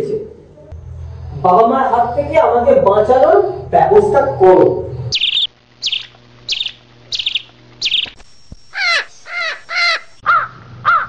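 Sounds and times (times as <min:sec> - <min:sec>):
harsh cawing calls: 0:05.1 - 0:08.1, 0:08.7 - 0:11.0
small bird chirping: 0:05.1 - 0:10.3.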